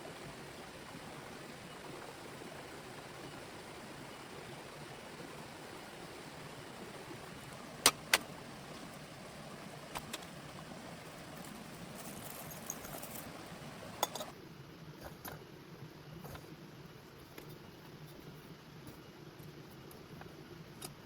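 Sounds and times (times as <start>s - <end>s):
heavy rain hiss: 0.0s - 14.3s.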